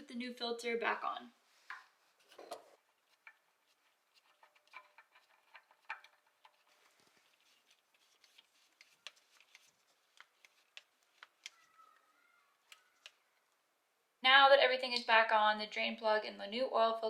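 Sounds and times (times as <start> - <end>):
faint squeak: 11.5 - 13.4.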